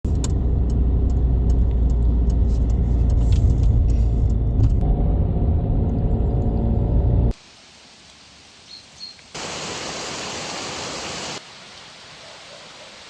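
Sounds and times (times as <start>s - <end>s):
car road and engine rumble: 0.0s - 7.4s.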